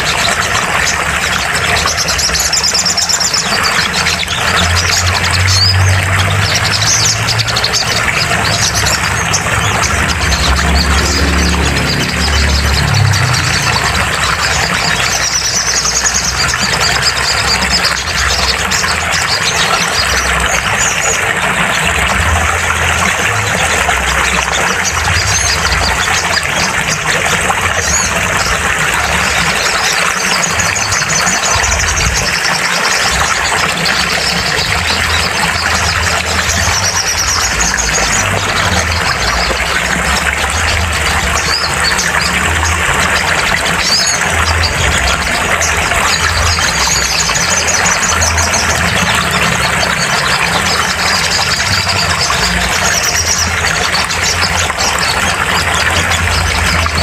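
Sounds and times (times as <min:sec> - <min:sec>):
bird chattering song: 0:00.0 - 0:57.0
low hum: 0:03.6 - 0:19.3.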